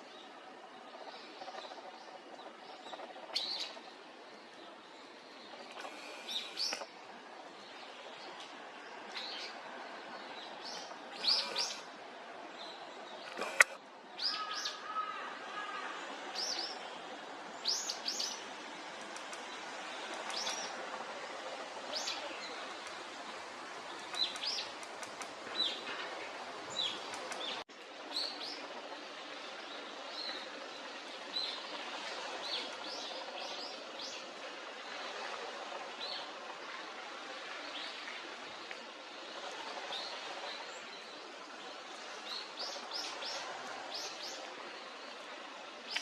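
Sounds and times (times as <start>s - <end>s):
birds chirping: 0.0s - 6.9s, 10.2s - 12.0s, 12.6s - 15.3s
faint outdoor hiss: 0.0s - 46.0s.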